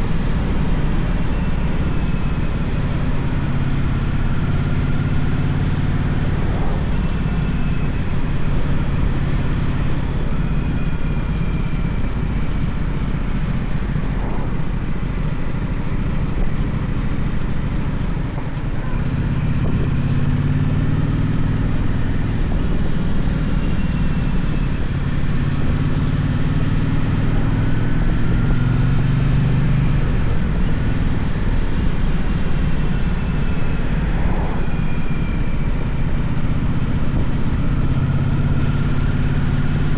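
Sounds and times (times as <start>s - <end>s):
steady rushing noise: 0.0s - 20.0s, 30.1s - 37.9s
motorcycle engine running: 0.0s - 39.9s.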